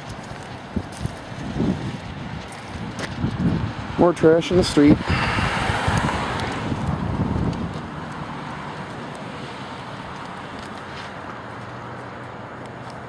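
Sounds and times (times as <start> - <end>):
distant traffic rumble: 0.0 - 13.0
car passing by: 3.7 - 13.0.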